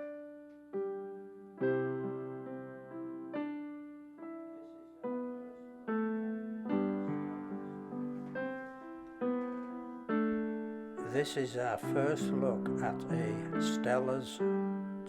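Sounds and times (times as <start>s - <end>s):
slow solo piano: 0.0s - 15.0s.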